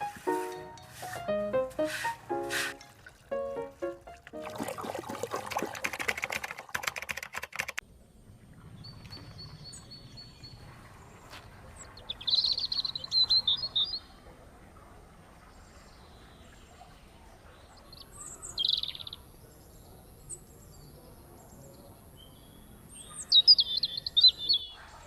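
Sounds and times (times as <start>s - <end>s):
music: 0.0s - 4.9s
bird chirping: 11.9s - 14.1s, 23.0s - 24.8s.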